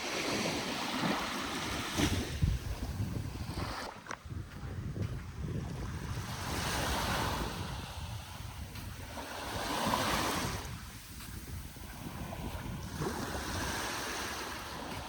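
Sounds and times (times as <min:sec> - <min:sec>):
sea waves washing onto beach: 0:00.0 - 0:15.0
wind rumbling on microphone: 0:00.0 - 0:15.0.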